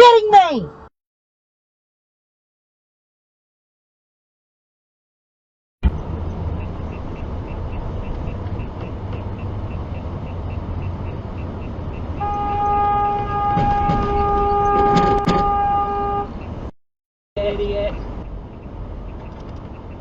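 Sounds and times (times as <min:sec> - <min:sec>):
car road and engine noise: 0:05.8 - 0:16.7, 0:17.4 - 0:20.0
light regular ticking: 0:06.6 - 0:12.1
car horn held: 0:12.2 - 0:16.4.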